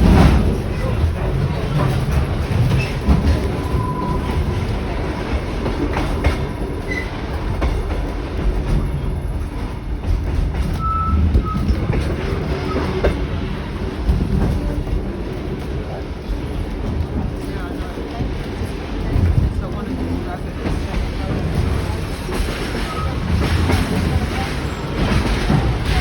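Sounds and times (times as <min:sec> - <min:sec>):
train rumble: 0:00.0 - 0:26.0
wheel squeals: 0:06.8 - 0:07.3, 0:10.7 - 0:13.0.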